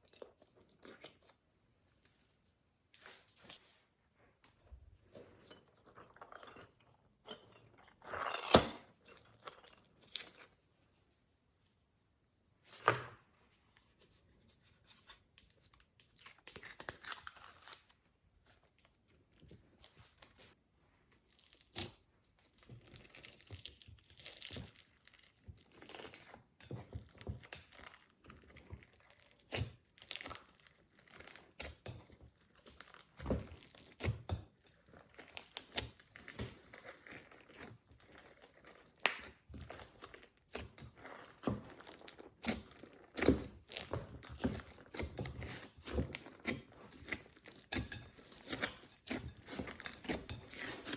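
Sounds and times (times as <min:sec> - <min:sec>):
slime squelching and crackling: 0:15.8 - 0:50.9.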